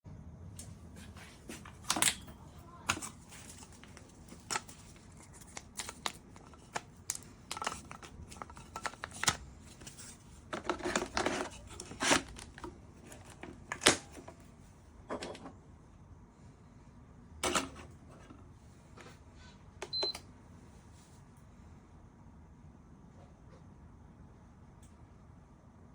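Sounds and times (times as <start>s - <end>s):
plastic parts clicking and knocking: 1.6s - 14.4s.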